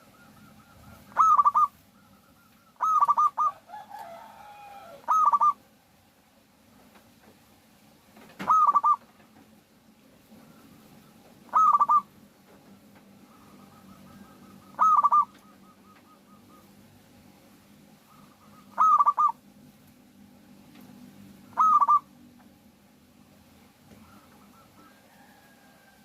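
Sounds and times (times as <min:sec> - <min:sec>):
faint repeated bird notes: 0:00.0 - 0:03.6, 0:05.0 - 0:05.7, 0:08.4 - 0:09.4, 0:10.2 - 0:19.6, 0:21.4 - 0:22.6, 0:23.6 - 0:26.0
dove cooing: 0:00.0 - 0:05.6, 0:08.4 - 0:09.1, 0:10.3 - 0:12.2, 0:13.2 - 0:17.0, 0:18.0 - 0:19.4, 0:21.5 - 0:22.2, 0:23.9 - 0:26.0.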